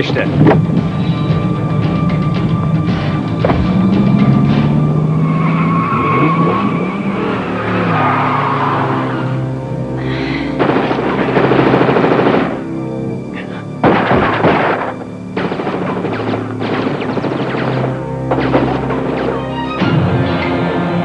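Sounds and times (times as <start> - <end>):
action film score: 0.0 - 21.0
automatic gunfire: 10.6 - 12.6, 13.8 - 18.9.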